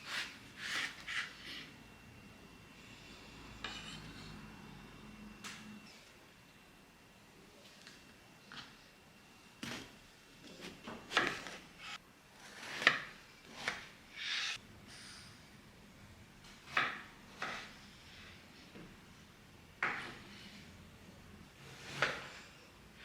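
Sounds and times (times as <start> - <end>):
utensil scraping cookware: 3.6 - 4.4.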